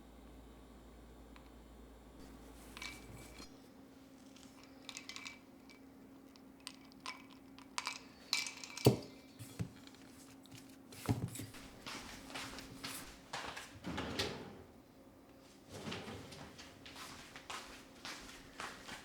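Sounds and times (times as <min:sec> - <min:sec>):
faint steady hum: 0:00.0 - 0:19.0
kitchen utensils clinking: 0:02.2 - 0:03.6, 0:04.4 - 0:05.9, 0:06.6 - 0:10.1.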